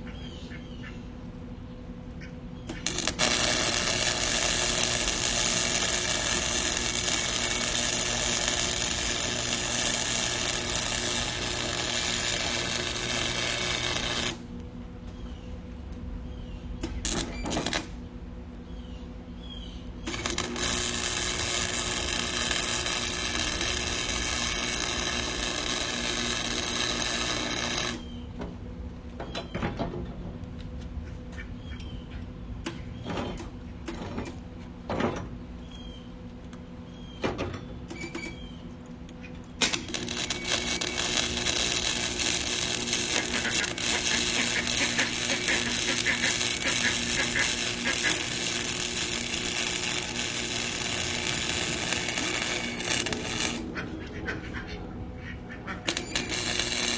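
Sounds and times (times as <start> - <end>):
steady low hum: 0.0 - 56.9
welder crackling sizzle: 2.7 - 14.6, 16.9 - 17.9, 20.0 - 28.1, 39.6 - 53.7, 55.9 - 56.9.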